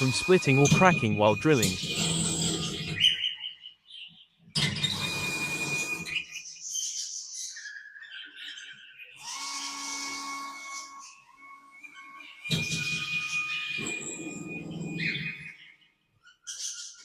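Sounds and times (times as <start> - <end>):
power drill whining: 0.0 - 3.2, 4.6 - 6.4, 9.1 - 15.7
birds chirping: 0.0 - 4.5, 10.7 - 17.0.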